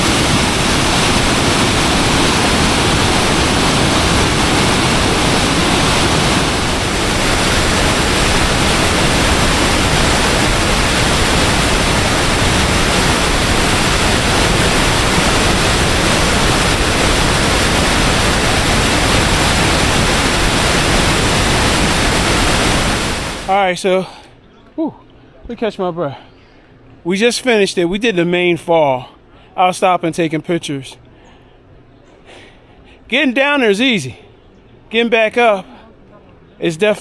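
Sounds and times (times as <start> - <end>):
waterfall rushing: 0.0 - 23.7.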